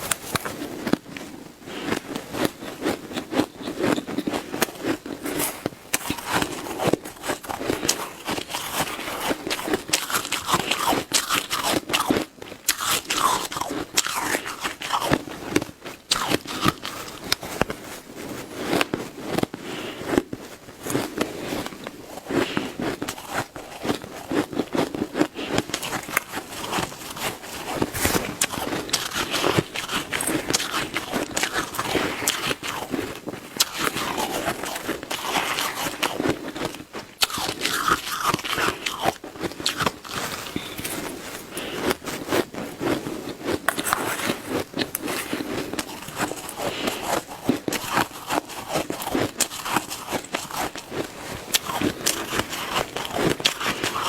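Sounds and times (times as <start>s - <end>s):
ice being chewed: 0.0s - 54.0s.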